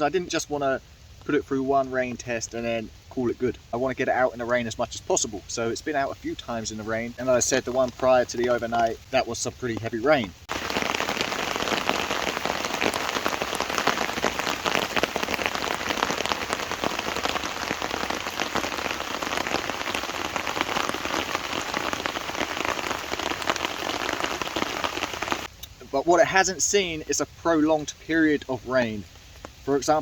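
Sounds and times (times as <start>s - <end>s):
rain drops pattering: 0.0s - 30.0s.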